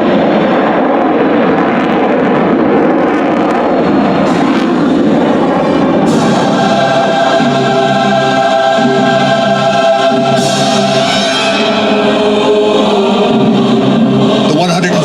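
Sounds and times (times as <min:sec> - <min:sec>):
choir singing held chords: 0:03.5 - 0:15.0
steady musical accompaniment: 0:03.7 - 0:15.0.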